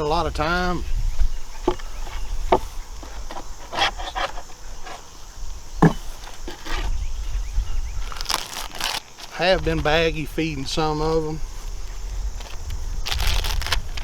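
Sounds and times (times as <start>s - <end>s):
wood knocking and scraping: 0.0s - 9.4s
low wind rumble: 0.0s - 14.0s.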